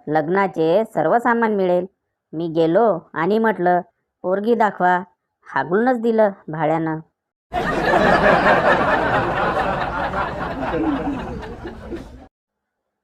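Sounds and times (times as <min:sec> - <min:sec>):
crowd laughter: 0:07.5 - 0:12.3.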